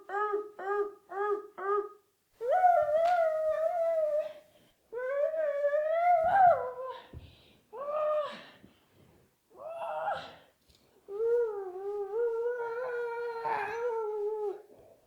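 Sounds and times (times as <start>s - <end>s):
howl-like voice: 0.0s - 4.2s, 11.2s - 14.7s.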